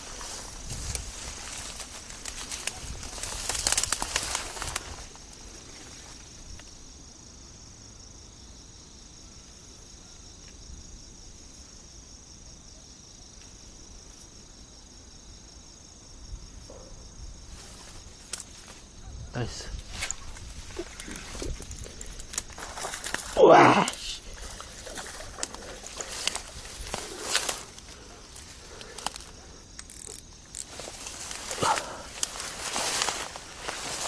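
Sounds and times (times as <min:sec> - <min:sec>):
insects trilling: 0:00.0 - 0:34.0
rustling and clattering: 0:19.8 - 0:23.4, 0:24.3 - 0:34.0.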